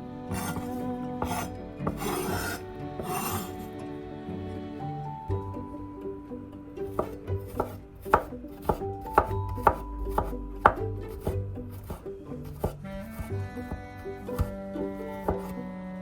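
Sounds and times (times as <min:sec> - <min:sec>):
soft melodic background music: 0:00.0 - 0:16.0
knife chopping on cutting board: 0:00.3 - 0:03.6, 0:06.9 - 0:15.6.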